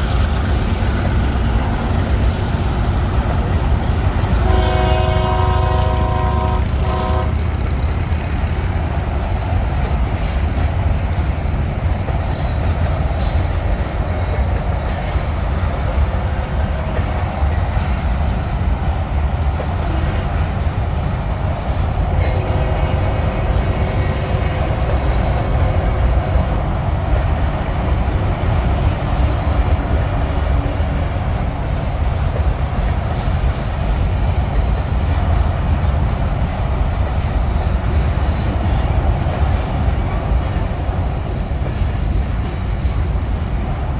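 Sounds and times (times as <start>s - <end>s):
freight train rumbling past: 0.0s - 43.9s
train horn chord: 4.3s - 7.6s, 22.3s - 24.6s
wheels clicking over rails: 5.7s - 9.0s
faint wheel squeal: 29.0s - 29.8s.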